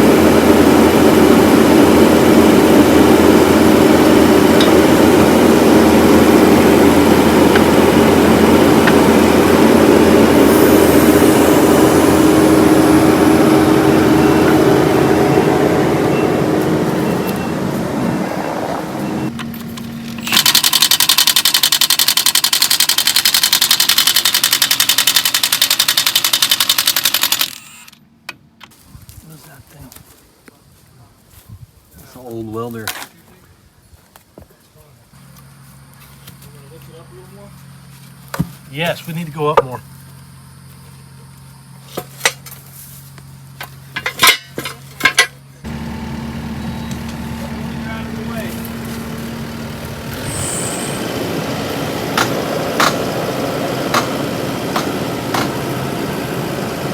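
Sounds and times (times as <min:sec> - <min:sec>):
steady hum: 0:00.0 - 0:21.0, 0:45.6 - 0:56.9
engine idling: 0:00.0 - 0:27.7, 0:45.1 - 0:56.9
impact wrench hammering: 0:04.6 - 0:05.3, 0:07.4 - 0:09.4, 0:20.2 - 0:27.7, 0:52.1 - 0:53.1, 0:53.9 - 0:55.6.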